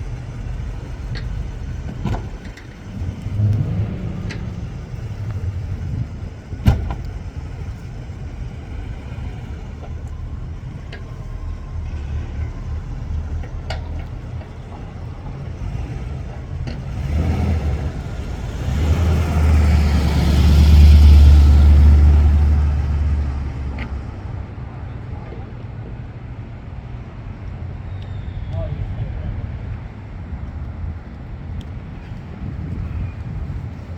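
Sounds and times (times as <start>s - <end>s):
car passing close: 0.0s - 24.6s
car engines rumbling: 0.0s - 33.9s.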